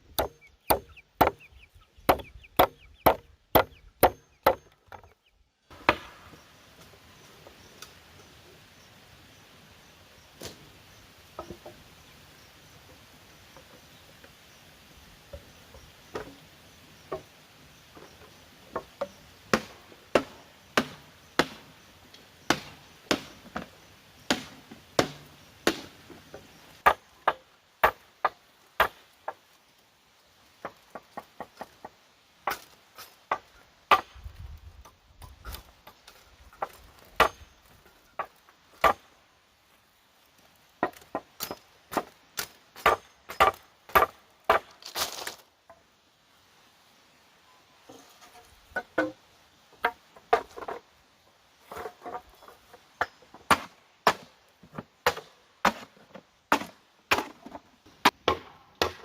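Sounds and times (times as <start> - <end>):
blade chopping into wood: 0.1 - 1.4, 2.1 - 4.7, 19.5 - 21.6, 22.5 - 23.4, 24.3 - 25.9, 58.0 - 59.0.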